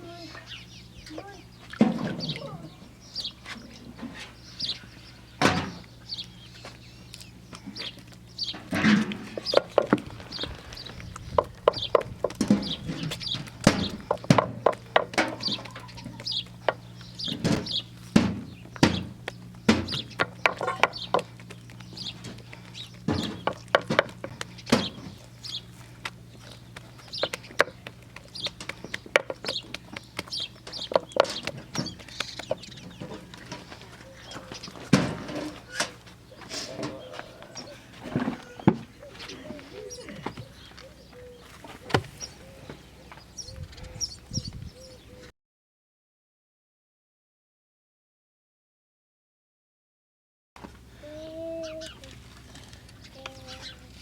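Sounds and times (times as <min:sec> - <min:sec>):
steady low hum: 0:00.0 - 0:45.3
chickens clucking: 0:00.1 - 0:45.2
chicks peeping: 0:00.1 - 0:45.2, 0:52.8 - 0:54.0
sharp knocks and taps: 0:26.8 - 0:33.1.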